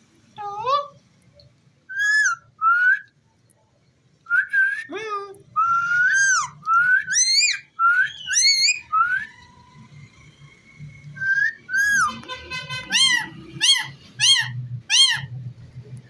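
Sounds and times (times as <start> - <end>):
parrot whistling: 1.9 - 3.1, 5.6 - 9.4, 11.2 - 12.2, 12.8 - 15.3.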